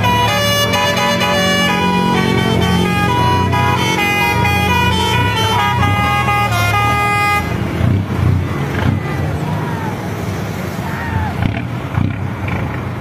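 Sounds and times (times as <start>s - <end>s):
musical air horn playing a tune: 0.0s - 7.6s
diesel truck engines running: 0.0s - 13.0s.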